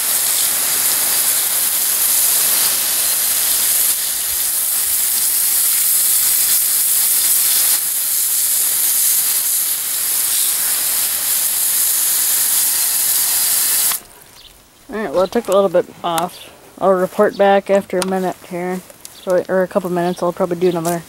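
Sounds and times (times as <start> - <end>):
hose water spraying on metal: 0.0 - 14.2.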